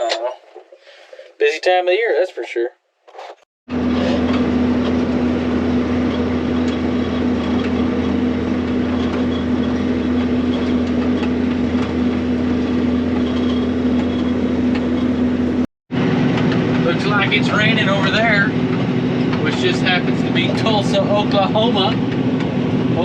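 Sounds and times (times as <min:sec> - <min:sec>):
swather engine drone: 0:03.7 - 0:23.0.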